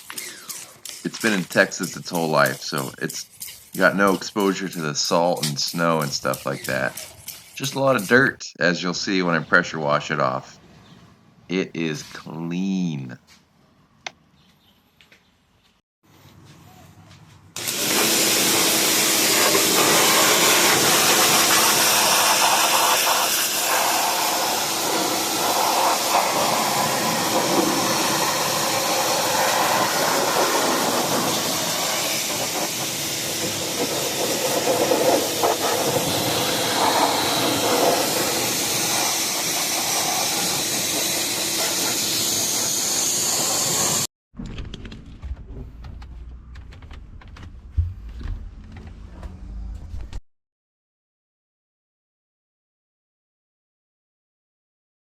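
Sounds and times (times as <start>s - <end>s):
pressure washer spraying: 17.6s - 44.1s.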